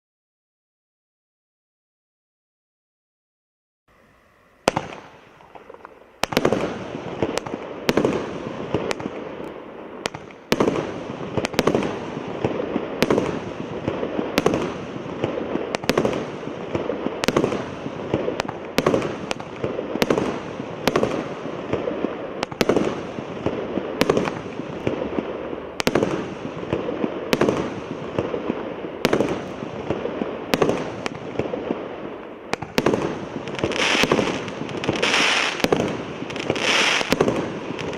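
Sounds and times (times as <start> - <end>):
firework crackling: 3.9 - 37.9
firework bangs: 4.6 - 37.9.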